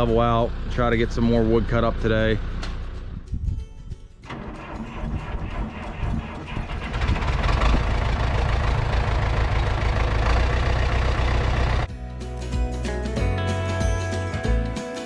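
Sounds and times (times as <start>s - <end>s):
diesel engine running: 0.0s - 3.6s, 4.2s - 11.9s.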